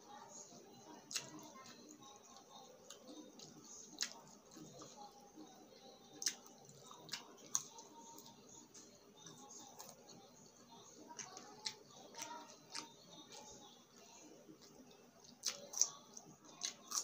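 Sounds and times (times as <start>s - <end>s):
chewing crisp chips: 1.0s - 5.1s, 5.9s - 17.0s.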